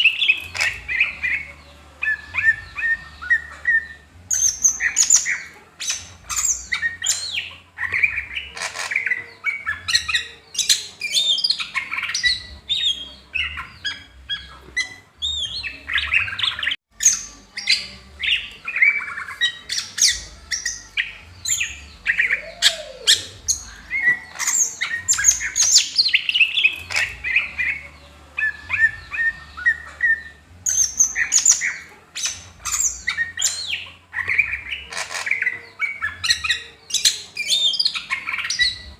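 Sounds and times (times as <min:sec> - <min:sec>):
bird singing varied song: 0:00.0 - 0:38.9.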